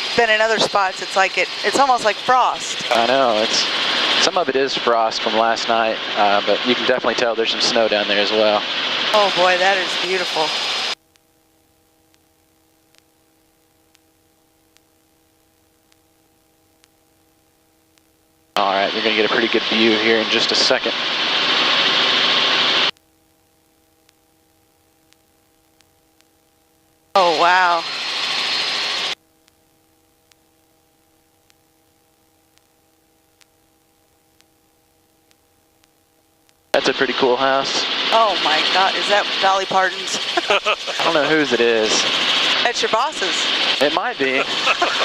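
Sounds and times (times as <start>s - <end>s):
faint steady hum: 0.0s - 45.0s
faint ticks: 12.1s - 14.1s, 23.9s - 26.6s, 29.4s - 36.7s
soft ticks: 30.2s - 30.4s.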